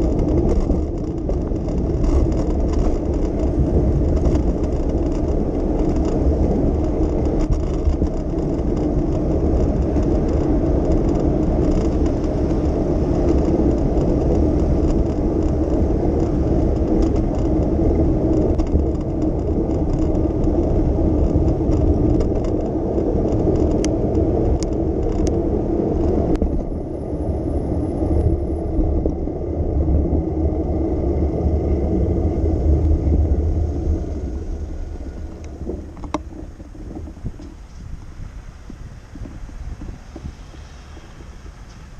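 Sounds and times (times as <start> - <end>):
bicycle tyre noise: 0.0 - 41.9
passing traffic: 0.0 - 41.9
wind noise: 0.0 - 41.9.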